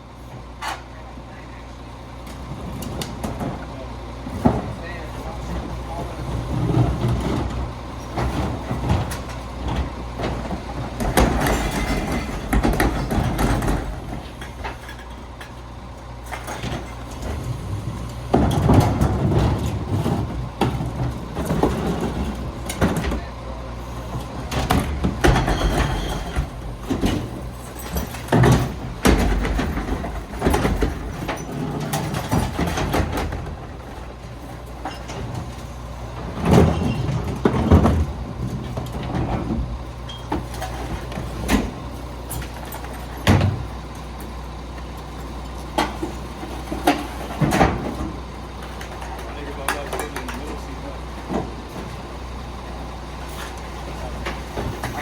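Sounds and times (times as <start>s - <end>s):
garbage truck engine hum: 0.0s - 55.0s
clanks and bangs: 3.2s - 15.5s, 16.3s - 23.3s, 24.1s - 34.1s.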